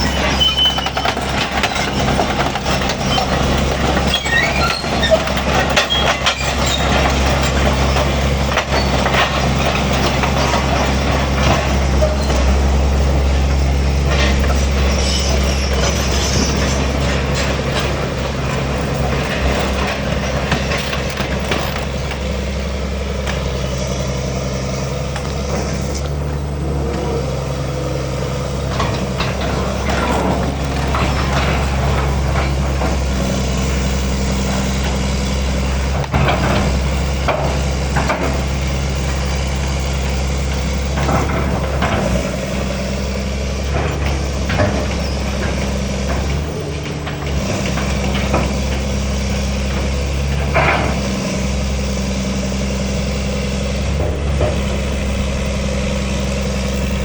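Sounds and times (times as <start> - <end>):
high squeaks of machine parts: 0.0 - 2.3, 2.9 - 7.1, 14.4 - 17.0
diesel engine running: 0.0 - 57.0.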